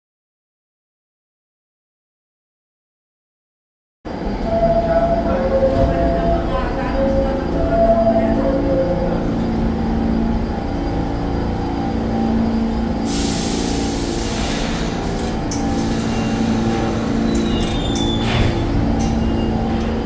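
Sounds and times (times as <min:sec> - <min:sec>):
subway train rumbling: 0:04.1 - 0:20.0
air hissing: 0:13.0 - 0:18.8.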